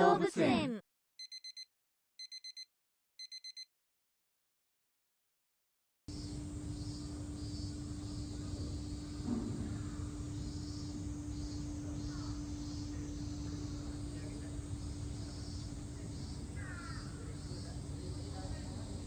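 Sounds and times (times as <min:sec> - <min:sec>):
faint pulsing high buzz: 0:06.1 - 0:19.0
steady low hum: 0:06.1 - 0:19.0.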